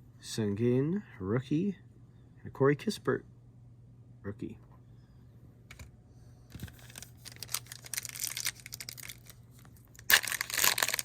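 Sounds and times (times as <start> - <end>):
foil wrapper crinkling and tearing: 6.6 - 11.0.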